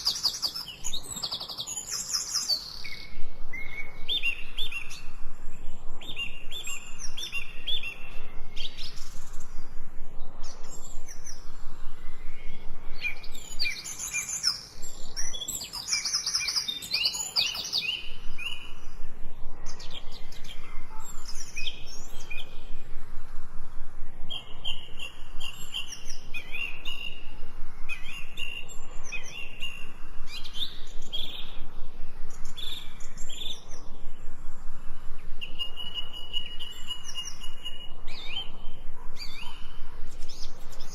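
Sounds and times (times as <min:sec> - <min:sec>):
songbirds chirping and trilling: 0:00.0 - 0:40.9.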